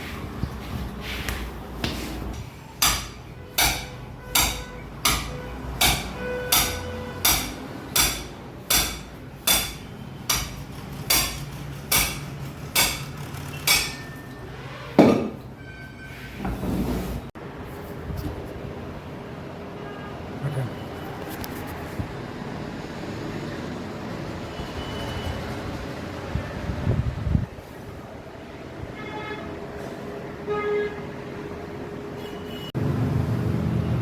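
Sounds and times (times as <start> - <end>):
hammer striking metal: 2.4 - 14.4.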